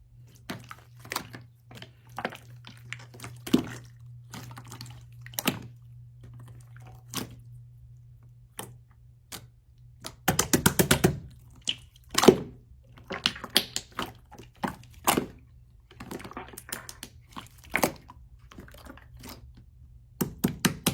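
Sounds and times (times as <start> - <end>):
slime clicking and popping: 9.3 - 12.4, 13.2 - 14.1.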